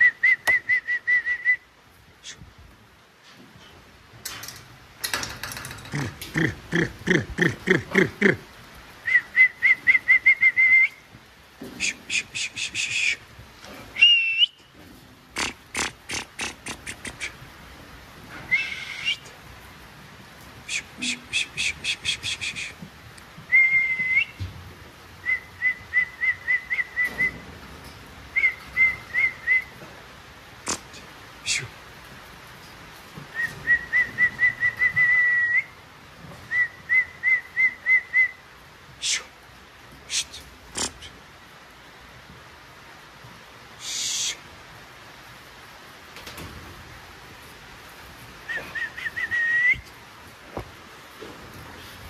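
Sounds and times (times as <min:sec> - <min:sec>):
person whistling: 0:00.0 - 0:01.6, 0:23.5 - 0:24.4, 0:48.5 - 0:49.9
short whistles: 0:00.0 - 0:02.4, 0:09.0 - 0:11.0, 0:11.8 - 0:13.2, 0:14.0 - 0:14.7, 0:18.5 - 0:19.2, 0:20.7 - 0:22.8, 0:23.5 - 0:24.4, 0:25.2 - 0:27.4, 0:28.4 - 0:29.8, 0:33.3 - 0:35.8, 0:36.5 - 0:38.4, 0:43.8 - 0:44.4, 0:48.4 - 0:50.0.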